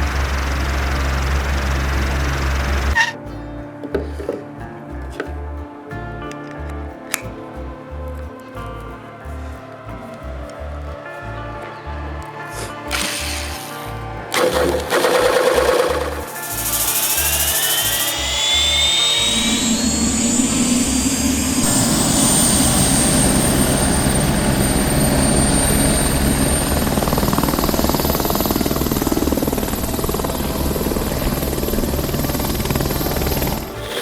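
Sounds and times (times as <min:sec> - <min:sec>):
electric drill boring wood: 0:00.0 - 0:03.0, 0:12.9 - 0:23.8, 0:26.8 - 0:34.0.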